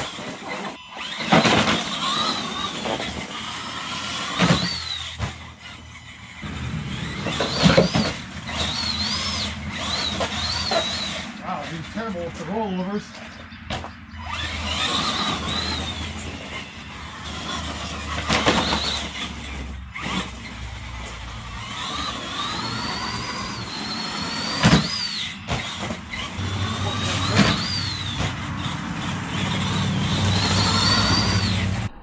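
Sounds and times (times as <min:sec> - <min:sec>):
toy truck hitting ground: 0:00.0 - 0:11.3, 0:13.7 - 0:31.8
electric motor whining: 0:00.0 - 0:32.0.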